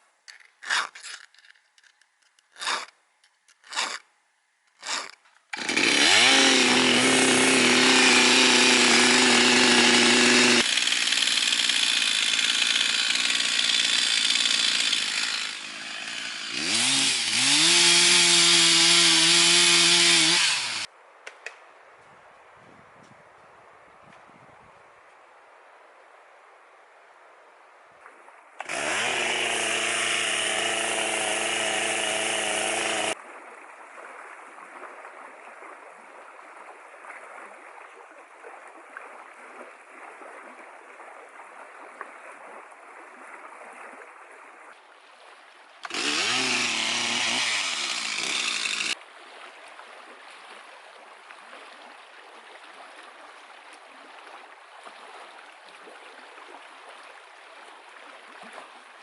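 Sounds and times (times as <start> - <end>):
chainsaw revving: 4.8 - 20.9, 28.6 - 33.2, 45.8 - 49.0.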